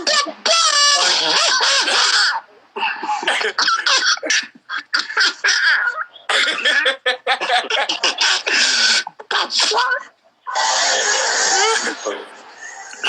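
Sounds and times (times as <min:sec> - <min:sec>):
people coughing: 0:00.0 - 0:09.8, 0:11.6 - 0:13.0
people laughing: 0:00.8 - 0:09.3, 0:11.6 - 0:13.0.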